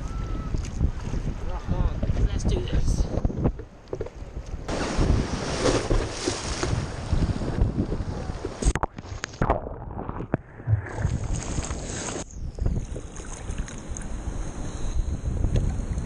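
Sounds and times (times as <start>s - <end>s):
wind buffeting camera: 0.0s - 16.0s
sea water surf: 4.7s - 9.5s, 10.4s - 16.0s.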